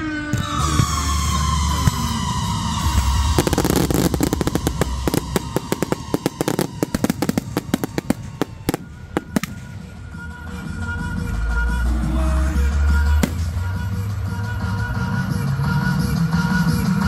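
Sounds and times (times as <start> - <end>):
fireworks crackling and popping: 0.2 - 10.2, 13.2 - 14.2.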